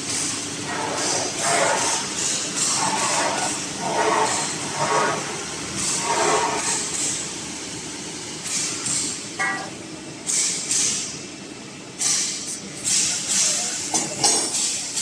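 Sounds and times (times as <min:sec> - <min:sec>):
plasma cutter hissing: 0:00.2 - 0:07.2
brief tone: 0:09.4 - 0:09.8.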